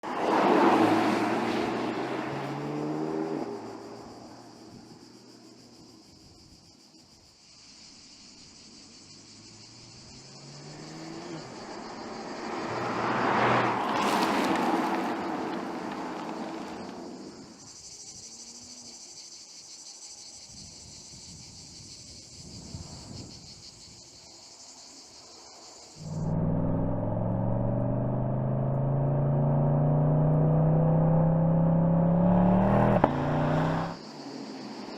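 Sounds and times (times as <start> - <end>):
car engine accelerating: 0.0 - 4.7, 9.5 - 17.5, 26.0 - 34.9
car passing by: 0.0 - 4.8, 9.6 - 17.6.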